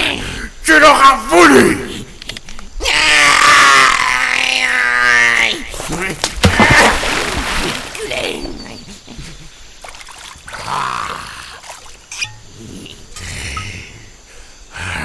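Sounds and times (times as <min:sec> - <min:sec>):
water sloshing: 0:05.8 - 0:08.9, 0:09.7 - 0:10.7, 0:11.5 - 0:12.3
loud splash into river: 0:06.4 - 0:08.1.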